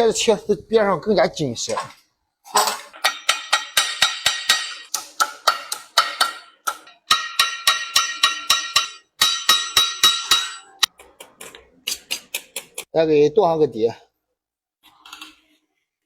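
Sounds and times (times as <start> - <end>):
hammer striking brass sheet: 7.1 - 10.8.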